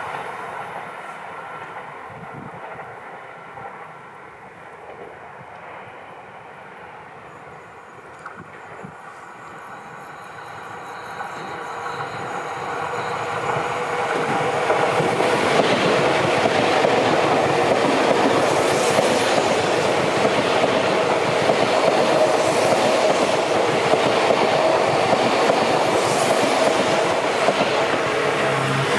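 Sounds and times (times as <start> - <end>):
electric train running: 7.2 - 28.9.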